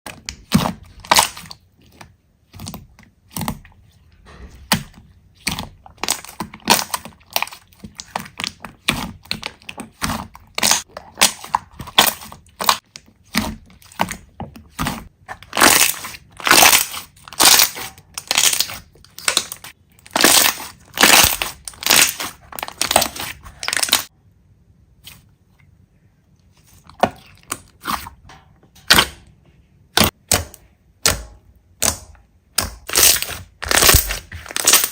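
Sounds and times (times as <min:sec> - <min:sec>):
slime crackling and popping: 0:05.4 - 0:24.1, 0:31.0 - 0:34.9.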